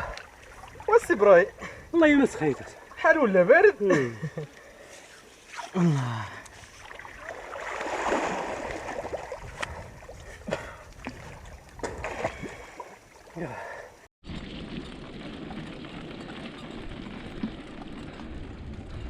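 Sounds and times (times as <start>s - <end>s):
water splashing and sloshing: 0.0s - 19.0s
sharp splashes: 5.4s - 13.6s.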